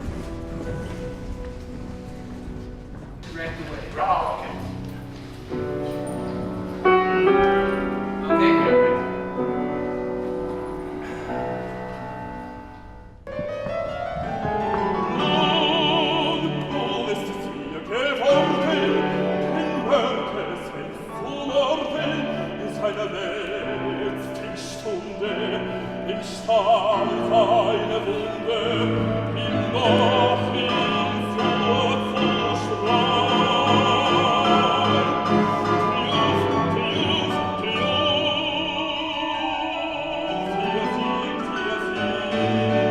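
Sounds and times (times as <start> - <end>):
operatic singing: 14.2 - 42.9.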